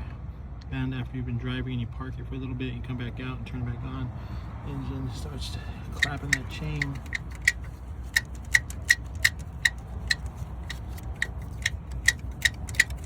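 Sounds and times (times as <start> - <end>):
engine running with low hum: 0.0 - 13.0
timing chain clacking: 6.0 - 13.0.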